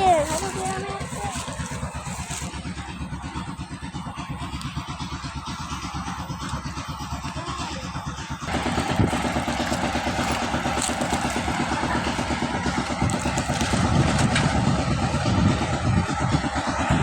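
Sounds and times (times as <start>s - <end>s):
vehicle engine running: 0.0s - 17.0s
gusty wind noise: 8.5s - 17.0s.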